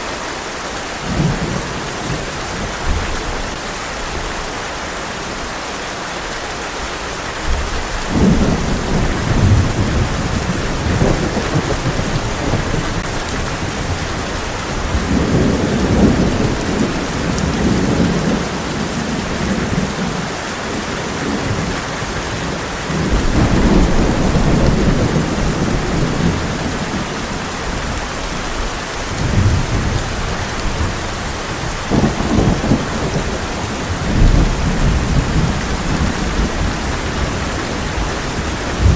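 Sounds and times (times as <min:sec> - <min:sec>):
heavy rain on a tin roof: 0:00.0 - 0:38.9
rolling thunder: 0:07.5 - 0:20.0, 0:22.9 - 0:38.9.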